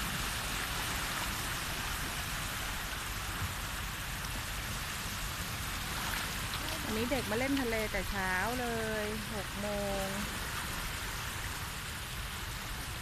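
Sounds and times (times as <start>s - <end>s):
low uneven rumble: 0.0s - 13.0s
sea water washing on beach: 0.0s - 13.0s.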